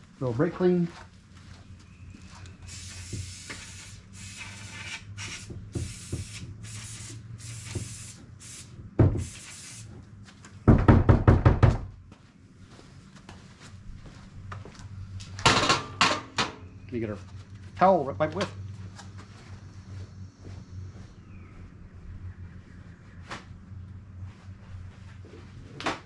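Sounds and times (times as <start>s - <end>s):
aerosol spray hissing bursts: 2.7s - 9.9s.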